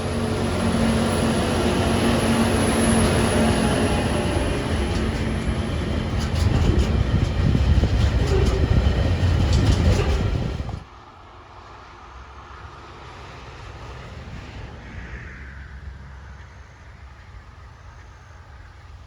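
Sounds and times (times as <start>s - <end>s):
rail clicks: 0.0s - 10.9s
freight train rumbling past: 0.0s - 19.0s.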